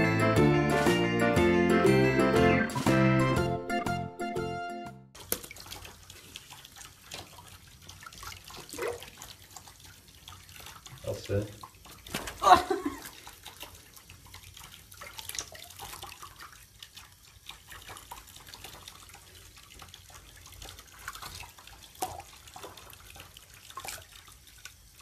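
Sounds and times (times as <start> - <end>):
water splashing in a sink: 5.2 - 25.0.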